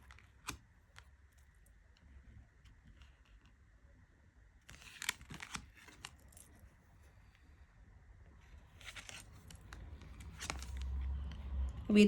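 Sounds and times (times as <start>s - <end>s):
cards being flipped by hand: 0.0s - 0.6s, 4.7s - 6.4s, 8.8s - 11.4s.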